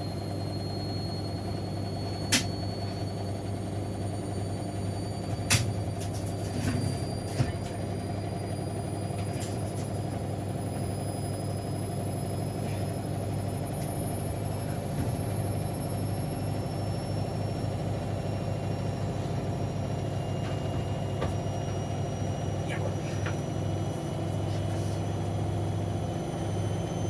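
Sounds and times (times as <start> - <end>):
high-pitched motor whine: 0.0 - 27.0
washing machine running: 0.0 - 27.0
small click: 2.3 - 2.6.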